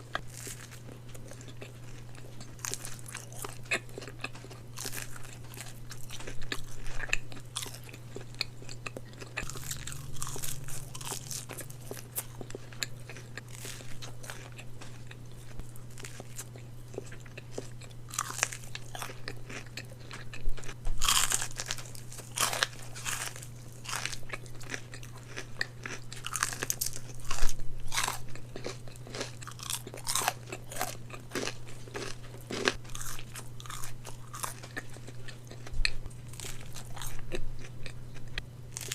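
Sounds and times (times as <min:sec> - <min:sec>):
crunchy chewing of fried chicken: 0:00.0 - 0:38.9
low hum: 0:09.3 - 0:19.5.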